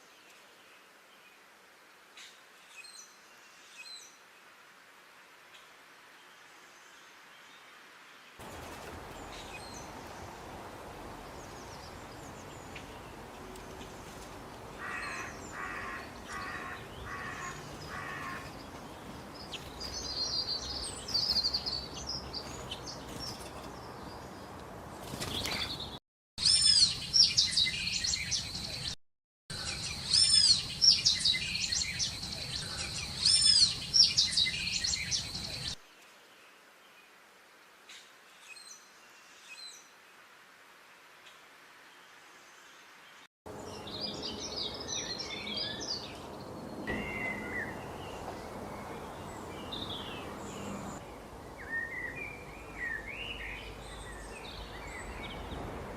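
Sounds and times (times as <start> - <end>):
birds chirping: 8.4 - 35.8, 43.5 - 55.9.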